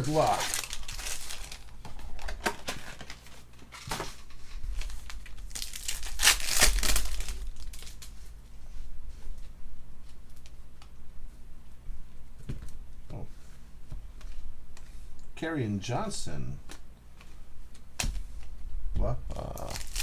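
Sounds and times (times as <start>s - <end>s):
foil wrappers torn and crinkled: 0.0s - 8.2s, 19.5s - 20.0s.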